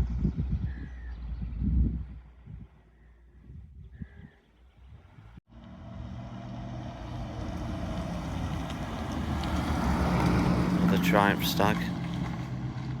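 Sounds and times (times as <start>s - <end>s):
bird chirp: 0.0s - 1.9s
faint low rumbling: 0.0s - 6.0s
car engine running: 5.5s - 13.0s.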